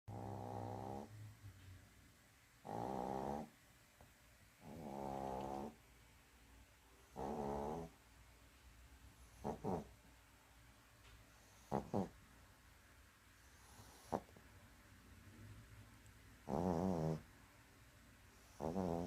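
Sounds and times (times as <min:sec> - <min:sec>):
dog snoring: 0:00.1 - 0:01.3, 0:02.6 - 0:03.5, 0:04.6 - 0:05.8, 0:07.0 - 0:08.0, 0:09.2 - 0:10.0, 0:11.3 - 0:12.2, 0:13.4 - 0:14.4, 0:16.4 - 0:17.3, 0:18.3 - 0:19.0.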